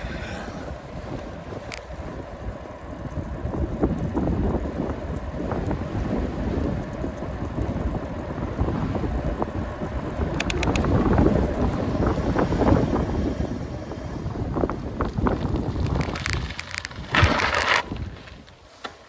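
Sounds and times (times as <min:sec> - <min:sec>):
wind on microphone: 0:00.0 - 0:18.5
bicycle road noise: 0:00.0 - 0:19.0
small clicks and rattles: 0:10.3 - 0:11.3, 0:15.3 - 0:17.8.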